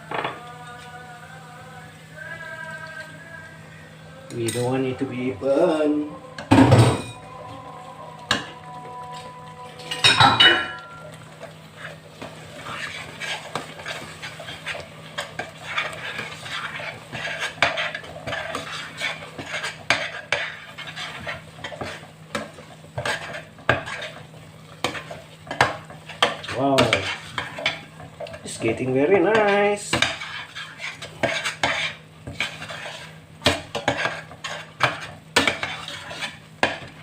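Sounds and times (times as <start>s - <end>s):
spoon scraping pot: 8.2s - 37.0s.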